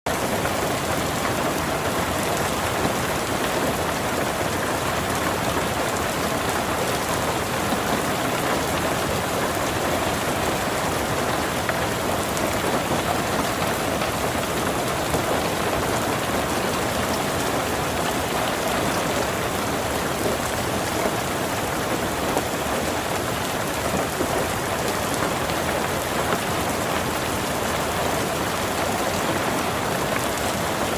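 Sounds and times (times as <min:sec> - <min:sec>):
steady rain falling: 0:00.1 - 0:30.9.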